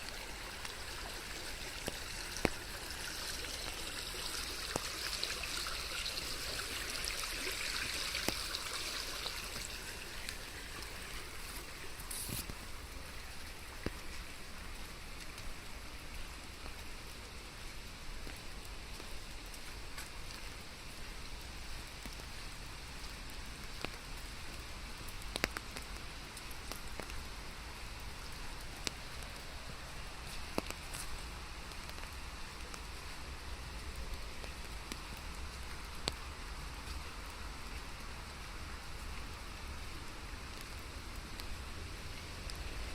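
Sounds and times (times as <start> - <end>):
sharp water drips: 0.0 - 12.7
steady rainfall: 0.0 - 42.9.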